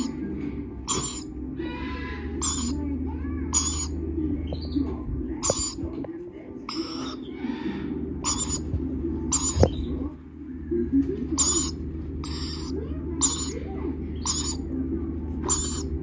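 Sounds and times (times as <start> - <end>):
steady low hum: 0.0 - 16.0
chicks giving raspy hissing calls: 0.9 - 1.3, 1.9 - 2.8, 3.6 - 3.9, 6.7 - 8.6, 9.3 - 9.6, 11.4 - 13.6, 14.2 - 14.6, 15.5 - 15.9.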